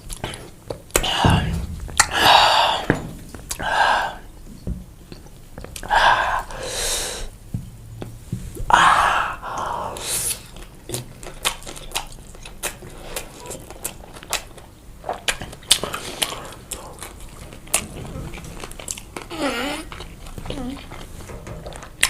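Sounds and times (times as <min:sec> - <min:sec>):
chewing pizza: 0:00.0 - 0:01.6, 0:09.5 - 0:22.0.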